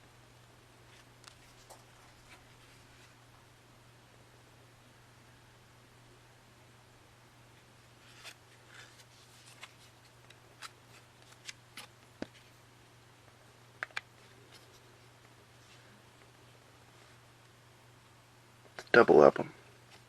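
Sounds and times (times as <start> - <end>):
faint steady hum: 0.0 - 20.0
paper and cardboard rustles: 8.0 - 12.5.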